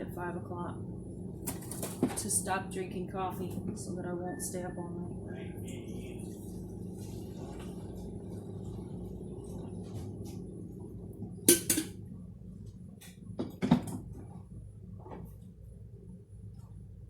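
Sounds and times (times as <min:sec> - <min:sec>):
steady low hum: 0:00.0 - 0:17.0
dishes clinking: 0:11.5 - 0:12.0.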